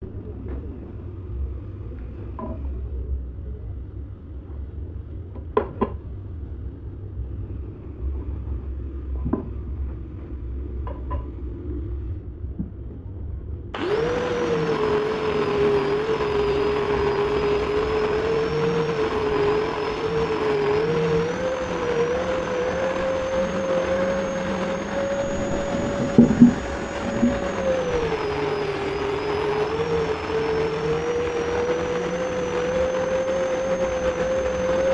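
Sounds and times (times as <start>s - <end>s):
power tool whining: 13.8s - 34.9s
knocks on wood: 26.0s - 26.6s.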